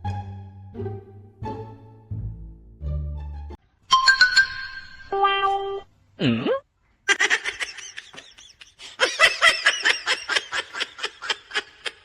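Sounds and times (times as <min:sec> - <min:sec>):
laughter: 0:07.1 - 0:12.0.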